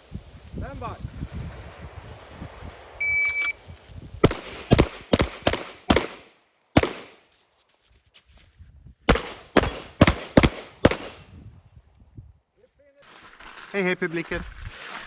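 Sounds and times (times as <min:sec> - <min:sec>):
shot timer beep: 0:03.0 - 0:03.6
pistol shots: 0:04.2 - 0:07.2, 0:09.1 - 0:11.3.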